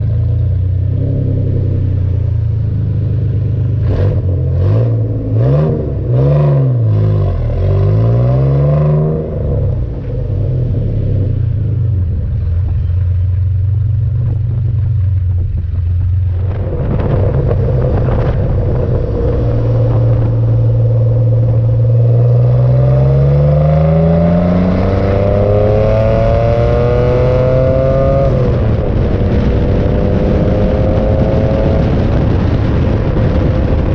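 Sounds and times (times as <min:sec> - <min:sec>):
car engine revving and accelerating: 0:00.0 - 0:13.0, 0:16.2 - 0:33.9
wind noise on microphone: 0:00.0 - 0:33.9.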